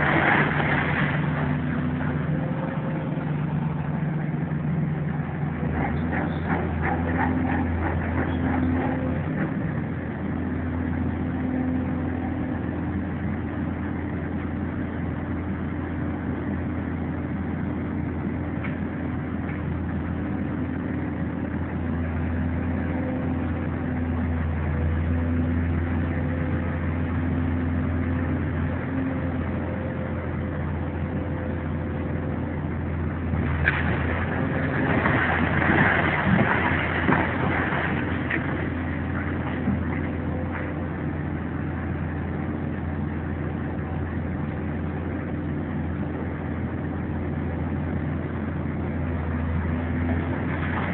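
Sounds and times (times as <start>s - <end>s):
heavy diesel engine running: 0.0s - 50.9s.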